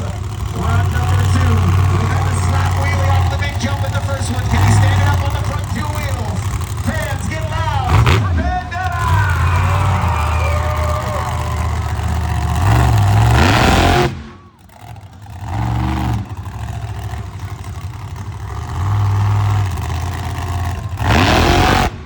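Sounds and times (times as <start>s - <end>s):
monster truck engine revving: 0.0s - 22.0s.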